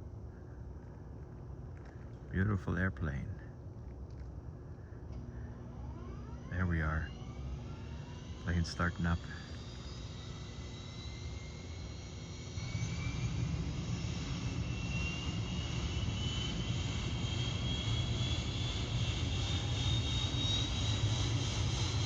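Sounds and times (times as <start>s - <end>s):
airplane engine low rumble: 0.0s - 22.0s
rising engine whine: 4.1s - 22.0s.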